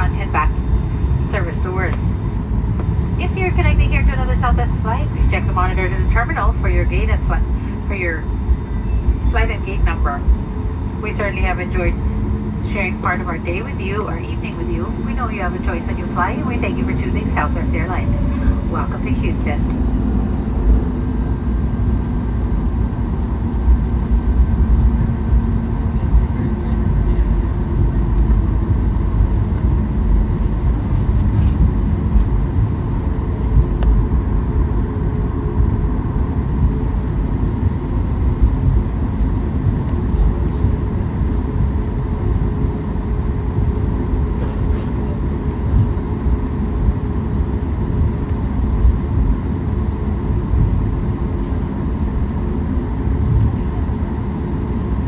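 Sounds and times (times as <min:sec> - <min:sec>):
faint steady tones: 0:00.0 - 0:30.6
airplane cabin engine rumble: 0:00.0 - 0:55.0.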